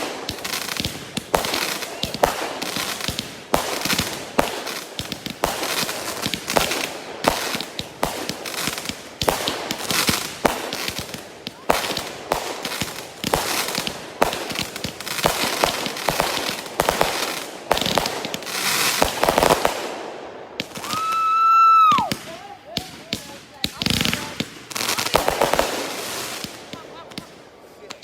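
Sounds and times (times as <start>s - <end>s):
firework bangs: 0.0s - 28.0s
firework crackling: 0.0s - 28.0s.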